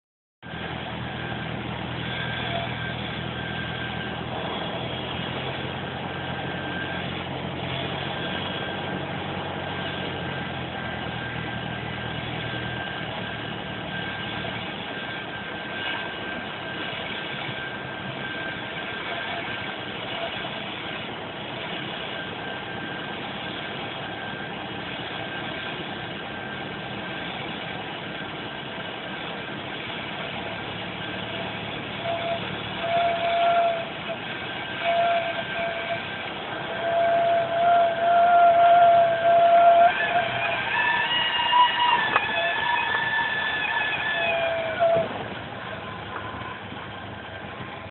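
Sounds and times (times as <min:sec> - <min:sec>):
propeller plane engine running: 0:00.4 - 0:47.9.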